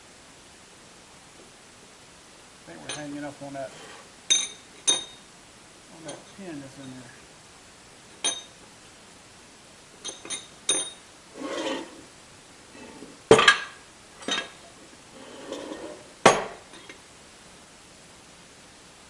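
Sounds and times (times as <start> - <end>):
metal scrapes: 3.6 - 4.1, 11.3 - 12.1, 15.1 - 16.1
light ringing metal taps: 8.2 - 8.5.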